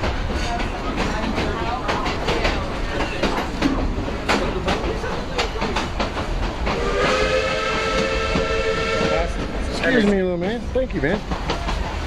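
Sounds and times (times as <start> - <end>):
passenger train rumbling: 0.0 - 12.0
train horn chord: 6.8 - 9.4.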